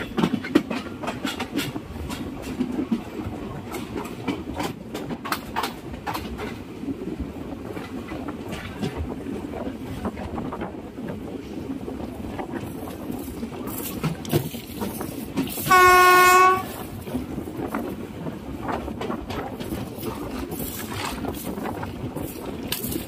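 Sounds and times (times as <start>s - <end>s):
train rumbling on rails: 0.0s - 23.0s
train horn blast: 15.6s - 16.9s.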